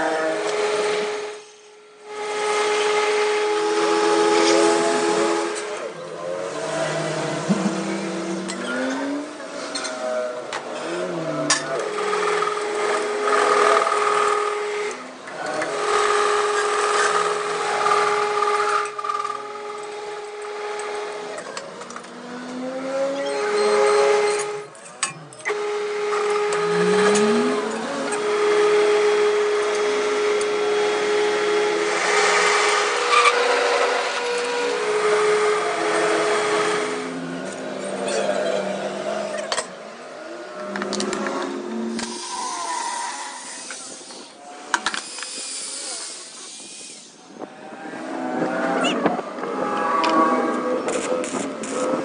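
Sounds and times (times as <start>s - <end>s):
workshop machine motor humming: 24.1s - 37.6s
metalworking hiss: 45.0s - 47.2s.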